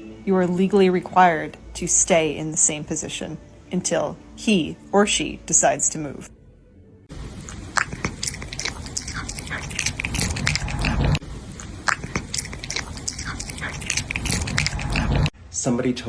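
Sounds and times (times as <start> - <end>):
cat chewing and biting: 7.3 - 15.3.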